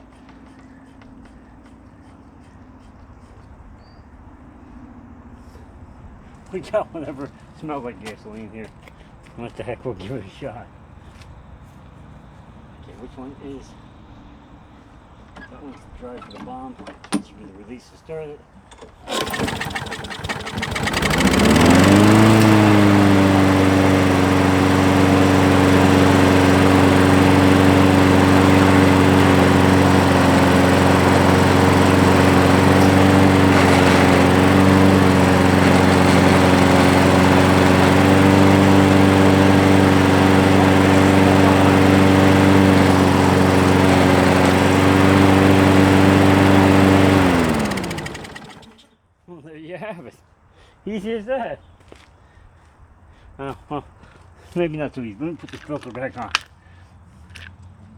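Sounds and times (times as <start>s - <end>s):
lawn mower engine running: 19.0s - 48.9s.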